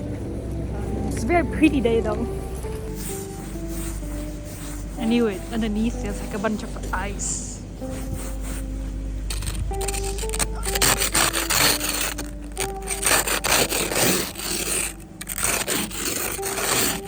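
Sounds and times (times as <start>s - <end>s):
ice scraper scraping ice: 9.3s - 17.0s.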